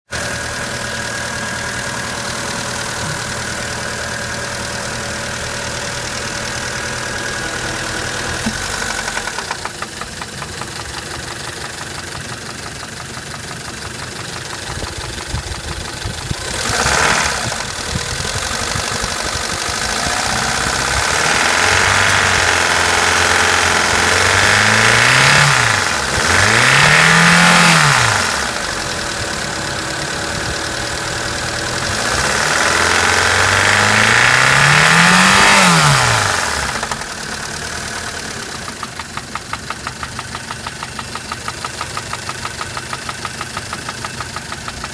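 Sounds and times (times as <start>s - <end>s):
car engine idling and revving: 0.1s - 44.9s
metallic engine knocking: 8.4s - 21.4s, 38.3s - 44.9s.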